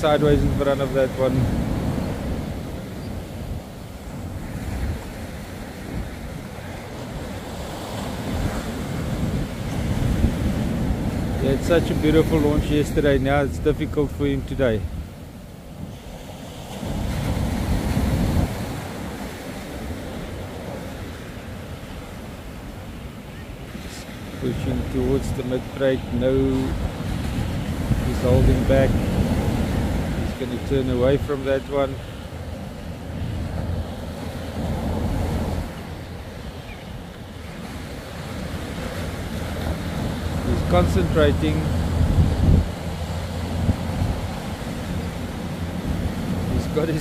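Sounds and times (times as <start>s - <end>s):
surf breaking and washing: 0.0s - 47.0s
wind on microphone: 0.0s - 47.0s
surf breaking: 23.6s - 47.0s.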